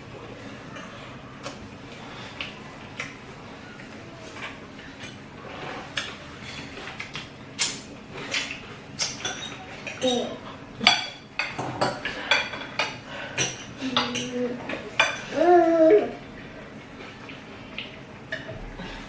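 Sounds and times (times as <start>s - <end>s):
cutlery clinking on plates: 8.2s - 15.4s.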